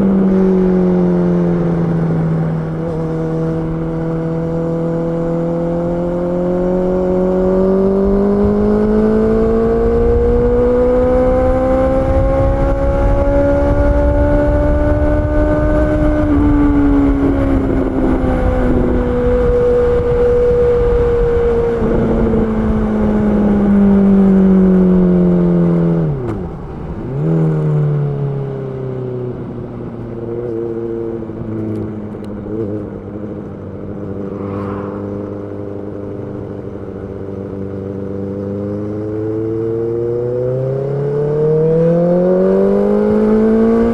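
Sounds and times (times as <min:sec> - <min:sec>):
motorcycle engine revving: 0:00.0 - 0:43.9
wind rush: 0:06.4 - 0:25.0, 0:33.6 - 0:37.4.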